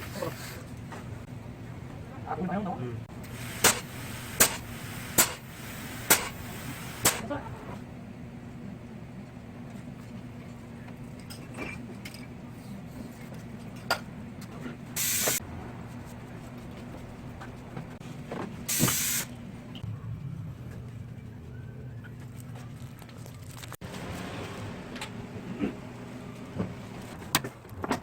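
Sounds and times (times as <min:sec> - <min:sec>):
gas hissing from a nozzle: 0:03.2 - 0:07.2, 0:15.0 - 0:15.4, 0:18.7 - 0:19.3.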